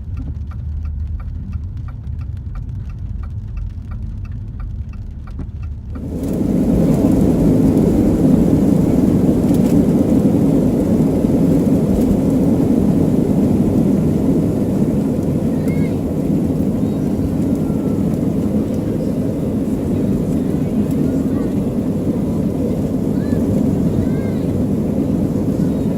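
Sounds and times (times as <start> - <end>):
hurricane wind roaring on microphone: 0.0 - 25.9.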